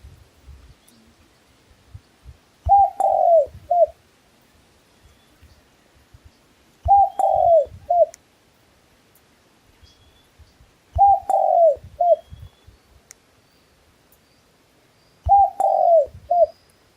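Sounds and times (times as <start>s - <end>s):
dove cooing: 2.7s - 4.0s, 6.8s - 8.1s, 11.0s - 12.3s, 15.2s - 16.6s
small bird chirping: 5.0s - 8.2s, 9.8s - 16.9s.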